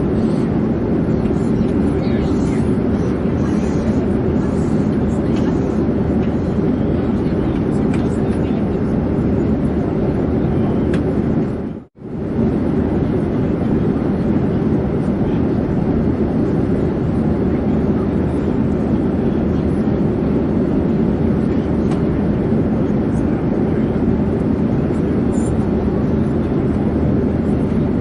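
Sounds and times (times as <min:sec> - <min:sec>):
airplane drone in flight: 0:00.0 - 0:28.0.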